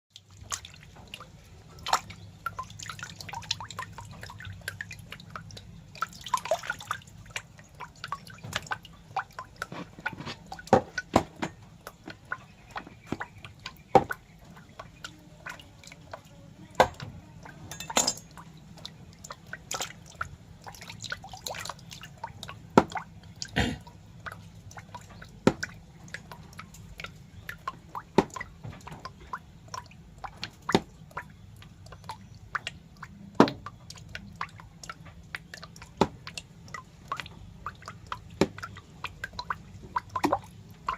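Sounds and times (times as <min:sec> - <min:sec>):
water drips: 0:00.1 - 0:40.9.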